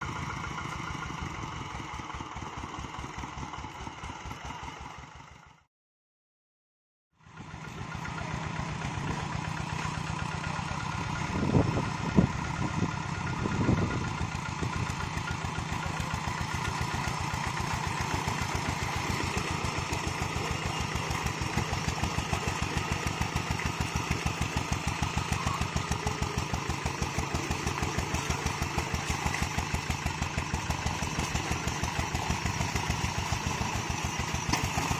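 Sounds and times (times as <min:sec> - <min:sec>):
diesel engine chugging: 0:00.0 - 0:05.7, 0:07.2 - 0:34.9
engine knocks: 0:07.3 - 0:34.9.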